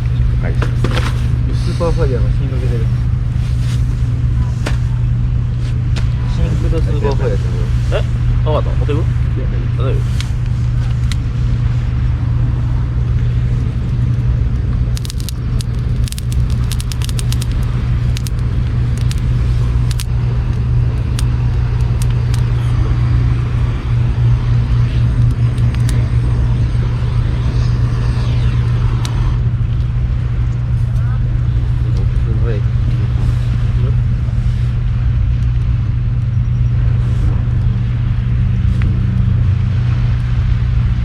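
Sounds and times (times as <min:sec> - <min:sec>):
loud low rumble: 0:00.0 - 0:41.0
campfire wood crackling and popping: 0:13.9 - 0:26.3.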